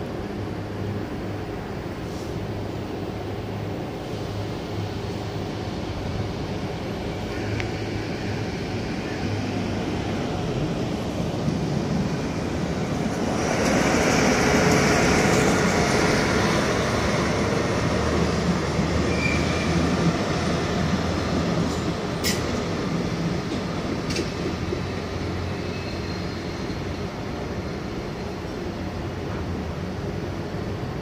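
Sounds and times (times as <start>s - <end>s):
diesel engine drone: 0.0s - 19.0s
electric locomotive rumbling past: 0.0s - 31.0s
train wheel squeal: 19.0s - 20.0s, 25.3s - 27.2s.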